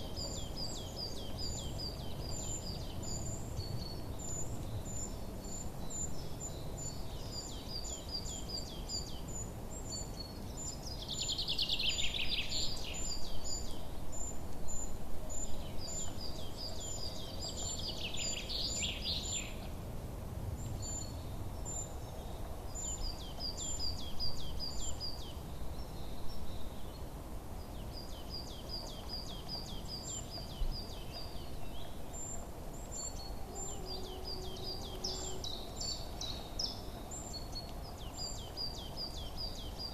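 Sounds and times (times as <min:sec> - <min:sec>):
songbirds chirping: 0:00.0 - 0:39.9
bird trilling song: 0:27.7 - 0:39.9.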